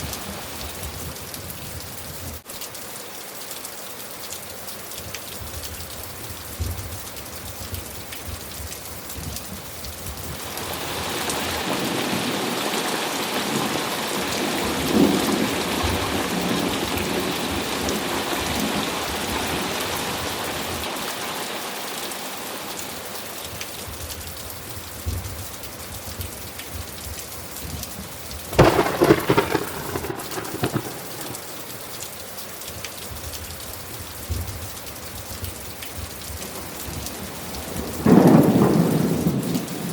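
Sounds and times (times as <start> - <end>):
steady rain: 0.0 - 39.9
rolling rumble of thunder: 28.5 - 31.8, 36.9 - 39.9
sharp crack of thunder: 28.5 - 31.9, 37.8 - 39.9.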